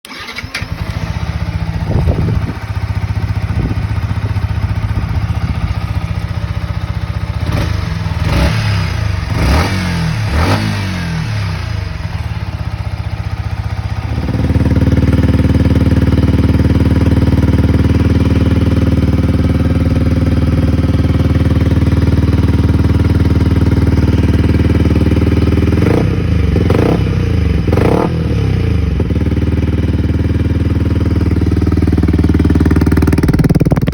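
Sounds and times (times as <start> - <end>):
motorcycle engine idling and revving: 0.1 - 33.9.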